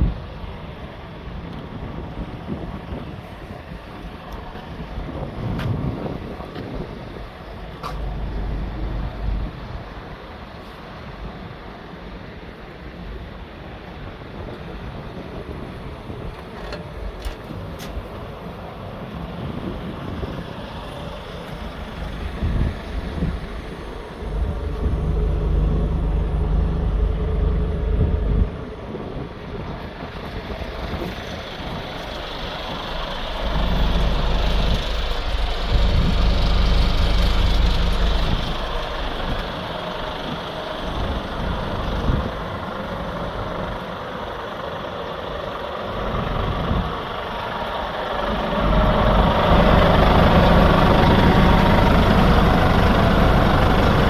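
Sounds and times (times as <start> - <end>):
truck diesel engine running: 0.0 - 12.0, 15.0 - 54.0.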